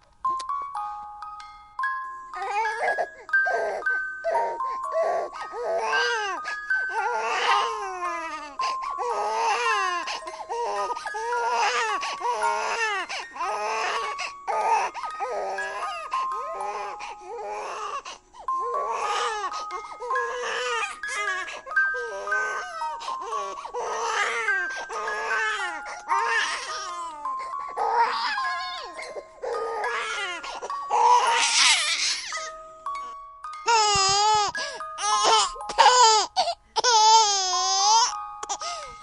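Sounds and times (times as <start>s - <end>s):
simple melody of single notes: 0.0s - 39.0s
baby crying: 2.3s - 32.6s, 33.7s - 38.9s.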